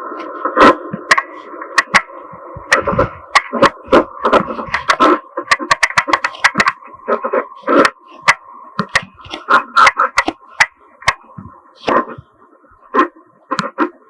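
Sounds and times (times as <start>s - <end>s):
sharp knocks and taps: 0.9s - 12.2s.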